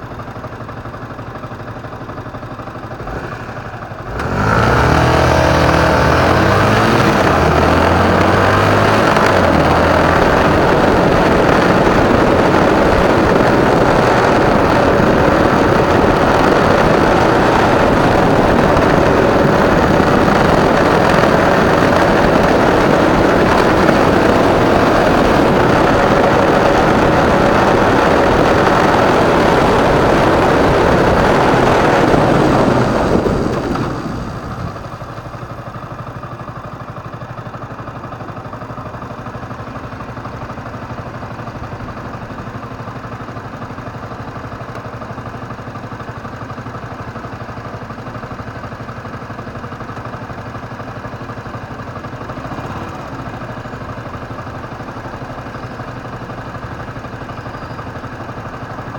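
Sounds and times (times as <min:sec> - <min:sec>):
motorcycle engine: 0:00.0 - 0:58.9
wind rush: 0:04.2 - 0:35.6.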